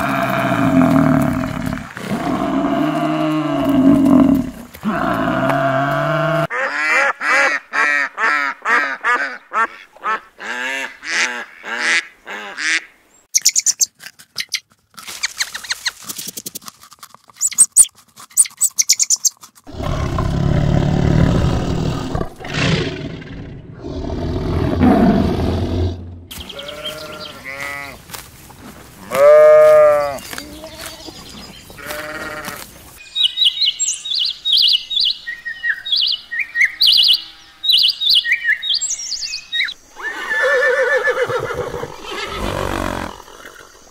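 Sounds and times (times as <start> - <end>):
rough low animal calls: 0.0 - 6.6
sharp high chirps: 13.3 - 14.6, 17.4 - 19.3.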